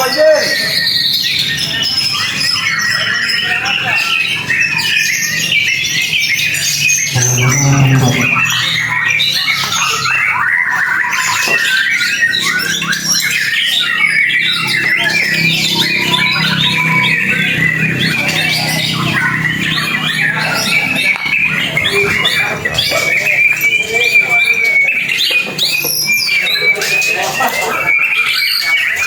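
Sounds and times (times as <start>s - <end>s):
birds singing rapid phrases: 0.0s - 29.0s
short low hum: 7.1s - 9.0s.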